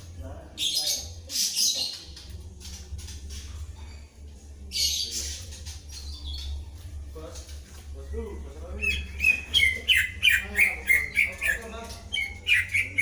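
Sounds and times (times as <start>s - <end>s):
steady low hum: 2.0s - 13.0s
birds harsh scratchy calls: 4.7s - 6.9s, 8.2s - 13.0s.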